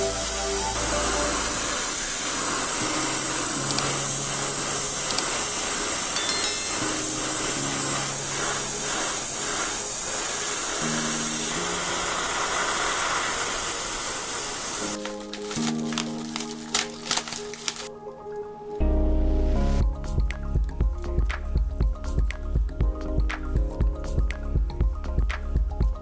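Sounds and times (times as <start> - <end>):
paint spraying hiss: 0.0 - 17.9
quiet background music: 0.0 - 26.0.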